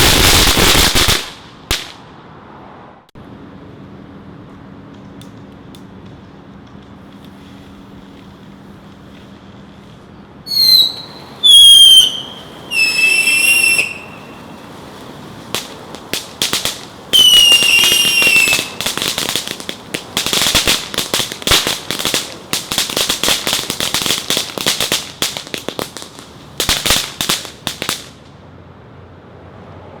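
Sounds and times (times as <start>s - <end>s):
fireworks crackling and popping: 0.0s - 2.1s, 6.8s - 28.4s
shrill firework whistles: 10.5s - 26.0s.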